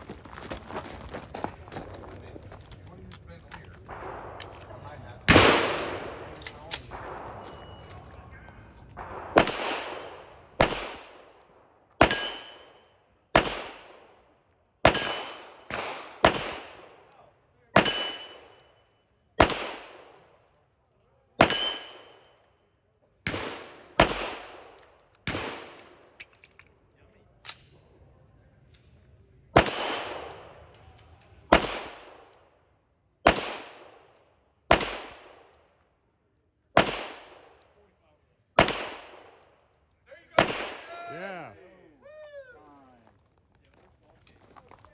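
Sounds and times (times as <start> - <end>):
gunshots: 3.9 - 11.4, 12.0 - 14.2, 14.8 - 17.2, 17.8 - 18.6, 19.4 - 20.3, 21.4 - 22.3, 23.3 - 26.0, 29.5 - 30.7, 31.5 - 32.3, 33.2 - 34.1, 34.7 - 35.5, 36.8 - 37.6, 38.6 - 39.4, 40.4 - 41.3
steel target ringing: 12.0 - 12.8, 17.8 - 18.7, 21.4 - 22.2.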